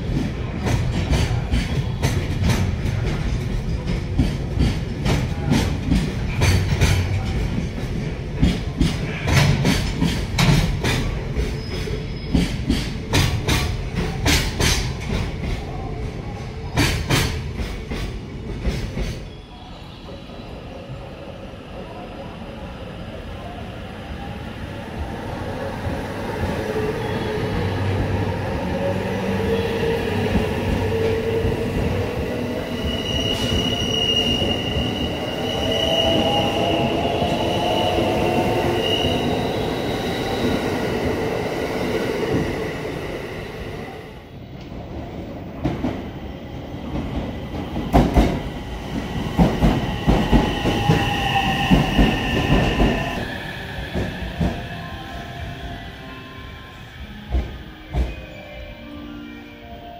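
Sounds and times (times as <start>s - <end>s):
electric train approaching: 0.0s - 59.9s
low train rumble: 0.0s - 59.9s
train wheels clicking over rail joints: 0.1s - 15.6s
high wheel and brake squeal: 32.7s - 36.5s.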